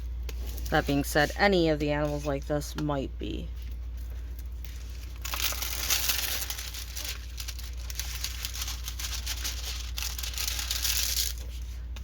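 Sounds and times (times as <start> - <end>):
plastic packaging crinkling: 3.6 - 11.8.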